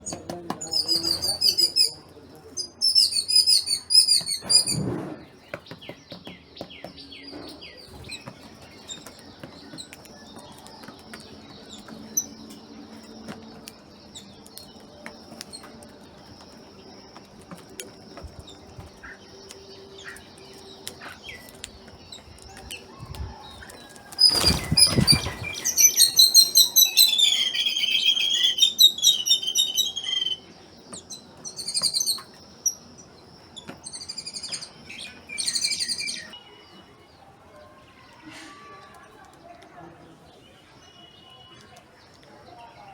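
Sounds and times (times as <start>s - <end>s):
small birds chirping: 0.0s - 42.9s
loud rustle: 23.6s - 25.9s.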